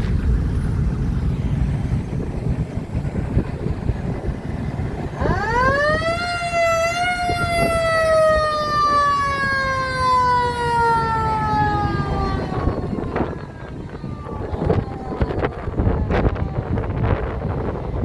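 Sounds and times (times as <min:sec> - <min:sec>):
low rumble: 0:00.0 - 0:18.0
mechanical siren wailing: 0:04.7 - 0:18.0.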